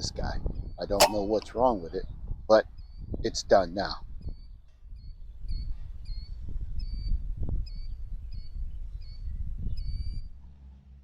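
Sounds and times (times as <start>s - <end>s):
wind buffeting microphone: 0.0s - 10.6s
small bird chirping: 4.3s - 10.2s.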